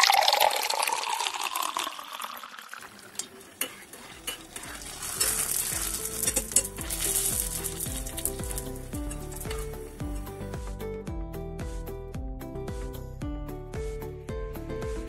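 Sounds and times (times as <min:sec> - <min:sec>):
food deep-frying in oil: 0:00.0 - 0:10.3
soft background music: 0:04.0 - 0:15.0.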